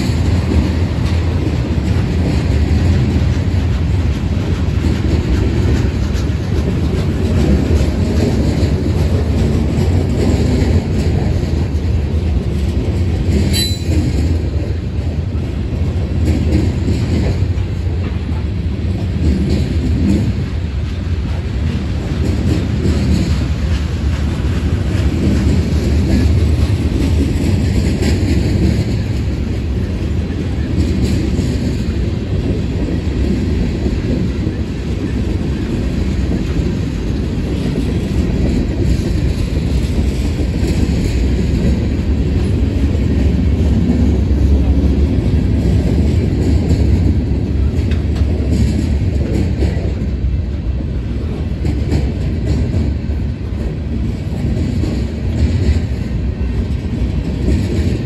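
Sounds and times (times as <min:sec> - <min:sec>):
freight train wheels rumbling on rail: 0:00.0 - 0:58.0
high wheel squeal: 0:13.5 - 0:13.9.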